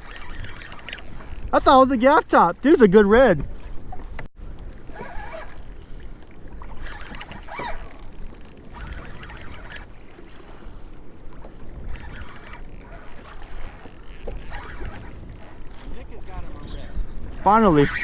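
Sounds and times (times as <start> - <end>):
splashing or rattling: 0.0 - 1.8, 4.8 - 16.0
water moving around kayak: 0.0 - 18.0
wind on microphone: 0.0 - 18.0.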